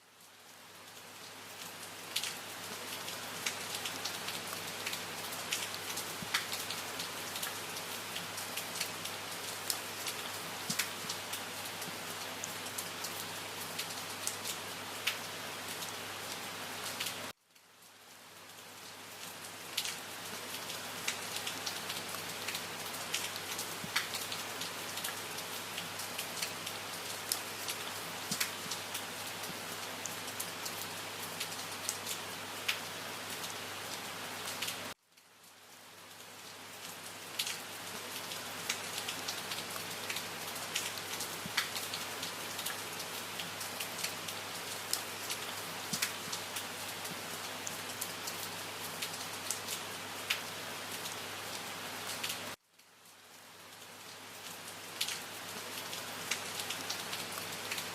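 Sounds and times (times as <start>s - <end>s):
rain drops tapping: 3.4s - 7.6s, 9.6s - 12.0s, 19.4s - 29.7s, 37.4s - 47.3s.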